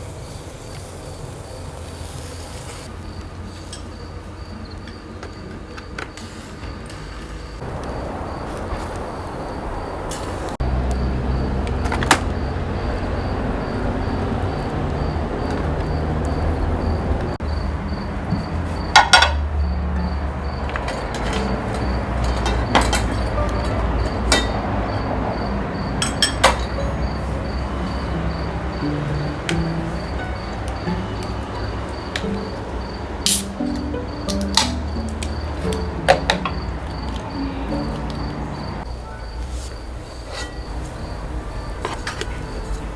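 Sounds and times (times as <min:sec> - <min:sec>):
insect chirping: 0:00.0 - 0:42.9
cooking utensils clinking: 0:03.5 - 0:04.2, 0:18.6 - 0:42.9.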